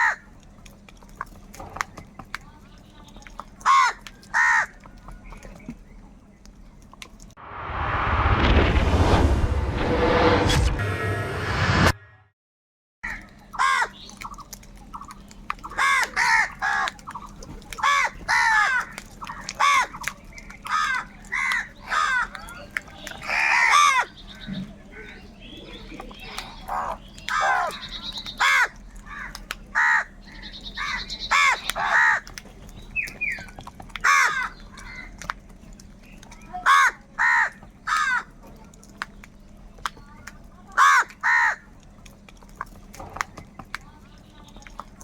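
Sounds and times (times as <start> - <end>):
crows cawing: 0.0 - 0.3, 3.6 - 5.0, 13.0 - 14.4, 15.6 - 25.2, 26.2 - 32.4, 33.3 - 35.3, 36.5 - 38.4, 40.7 - 41.8.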